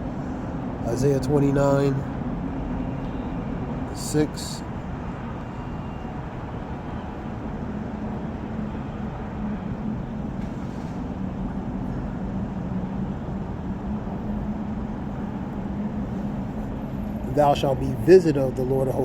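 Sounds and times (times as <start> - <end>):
vehicle drone: 0.0 - 19.0.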